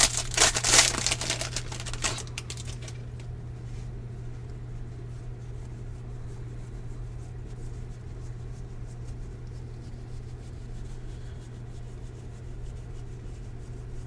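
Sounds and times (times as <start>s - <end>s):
trading cards rustling: 0.0s - 3.2s
low electrical hum: 0.0s - 14.0s.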